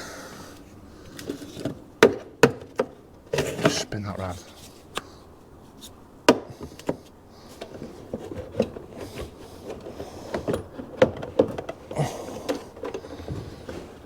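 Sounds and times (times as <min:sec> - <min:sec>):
car parts and tools clicking: 0:05.7 - 0:14.0.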